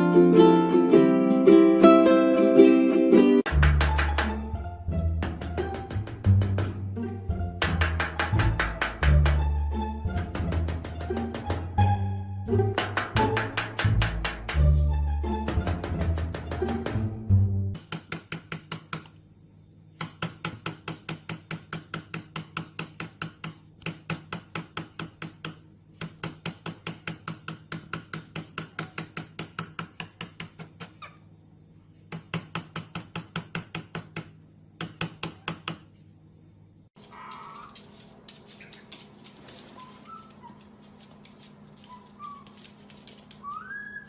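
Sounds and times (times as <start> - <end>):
rapid tapping: 3.5 - 9.6, 10.2 - 11.8, 12.7 - 14.7.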